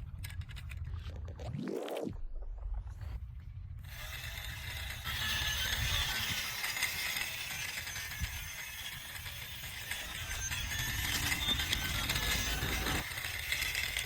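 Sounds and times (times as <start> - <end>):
toy train motor whirring: 3.8 - 14.0.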